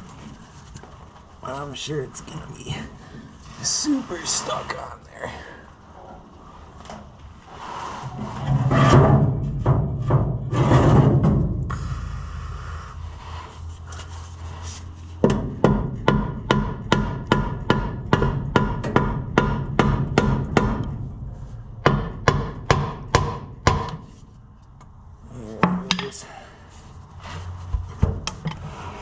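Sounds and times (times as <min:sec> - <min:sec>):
hammer striking metal: 0:15.2 - 0:21.0, 0:21.8 - 0:24.0.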